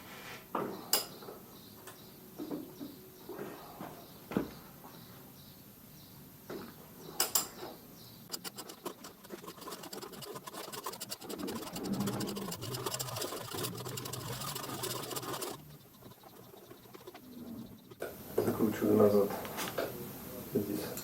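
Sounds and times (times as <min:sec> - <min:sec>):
ratchet wrench clicking: 0:08.3 - 0:17.2.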